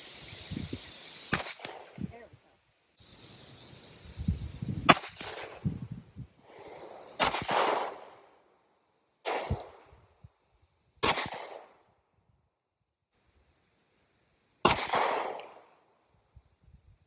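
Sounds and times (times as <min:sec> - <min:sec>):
single gunshots: 0:01.3 - 0:02.0, 0:04.8 - 0:05.8, 0:06.6 - 0:08.2, 0:09.2 - 0:09.9, 0:11.0 - 0:11.8, 0:14.6 - 0:15.7.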